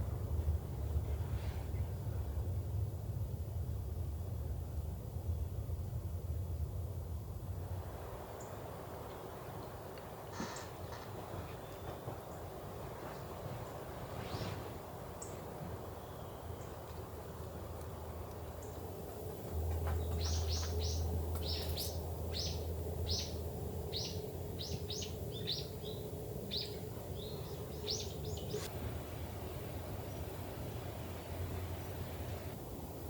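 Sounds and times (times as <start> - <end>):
rain hissing: 18.8 - 33.0
bird chirping: 19.6 - 28.7.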